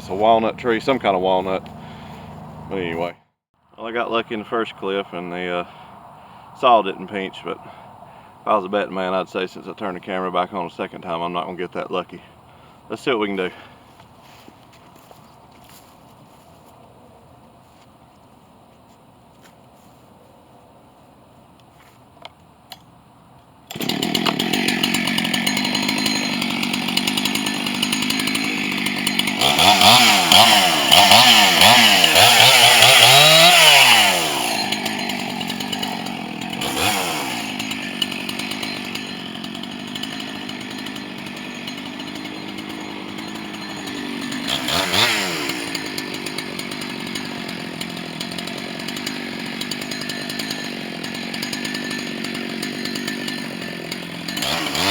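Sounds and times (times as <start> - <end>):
chainsaw running and revving: 0.0 - 3.1, 23.7 - 54.9.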